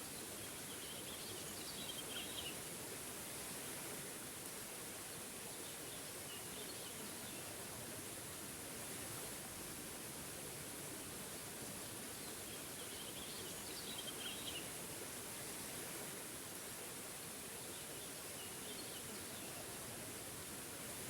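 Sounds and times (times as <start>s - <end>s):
faint songbird chirps: 12.2s - 14.7s, 17.6s - 19.8s.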